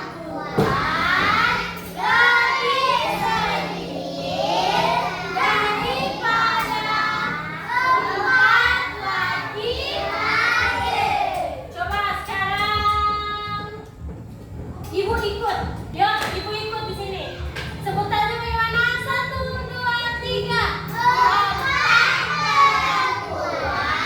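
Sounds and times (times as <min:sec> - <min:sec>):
children singing: 0:00.0 - 0:11.6, 0:20.9 - 0:24.0.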